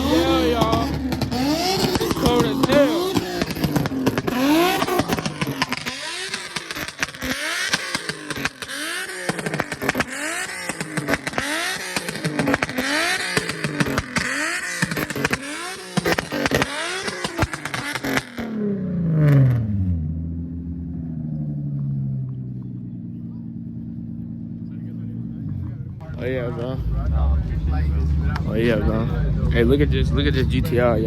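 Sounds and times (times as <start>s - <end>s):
sharp exhaust pops: 0.0s - 18.6s
car engine revving: 0.0s - 31.0s.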